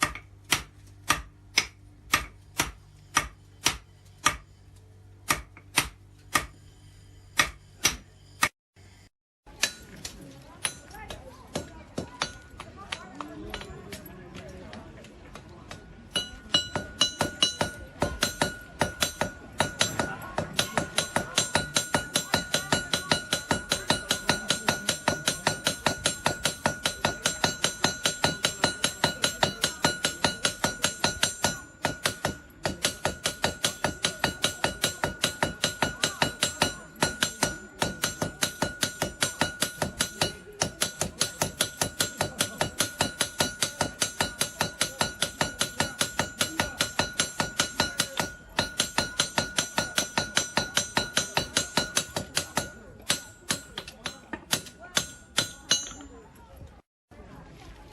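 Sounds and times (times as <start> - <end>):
hammer striking anvil: 0.0 - 4.5, 5.2 - 6.7, 7.3 - 8.5, 9.5 - 14.1, 15.3 - 56.2
high metallic ring: 6.5 - 10.0, 16.1 - 56.2.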